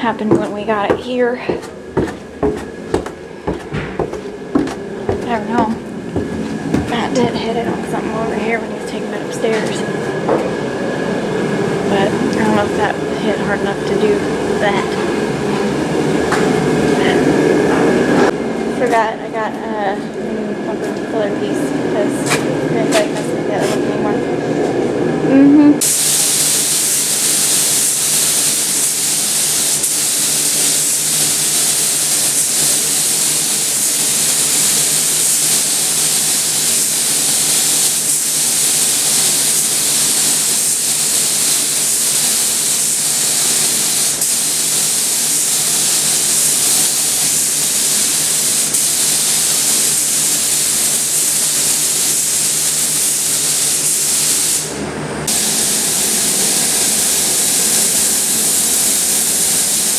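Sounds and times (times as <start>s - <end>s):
spray gun hissing: 25.8s - 59.9s.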